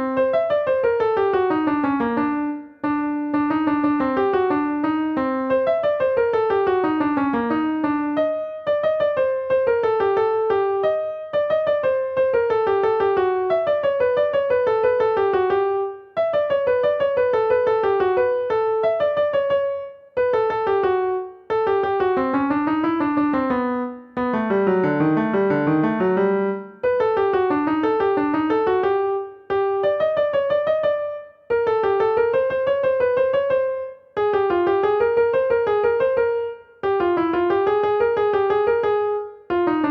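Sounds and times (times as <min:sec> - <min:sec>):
piano melody: 0:00.0 - 0:39.9.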